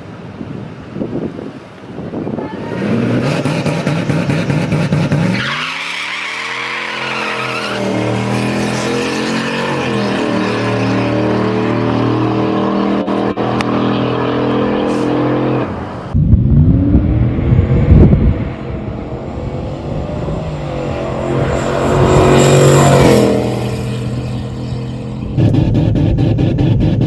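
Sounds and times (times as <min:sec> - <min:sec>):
tire squeal: 0:02.5 - 0:15.6
car engine revving: 0:02.8 - 0:27.0.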